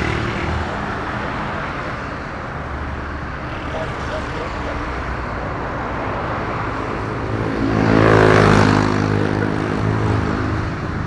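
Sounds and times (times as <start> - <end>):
jet engines passing by: 0.0 - 11.0.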